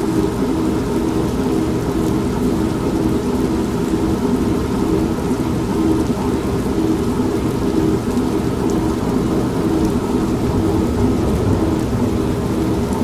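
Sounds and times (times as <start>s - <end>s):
steady rain: 0.0s - 13.0s
washing machine humming: 1.4s - 13.0s
low rumble of thunder: 8.9s - 13.0s.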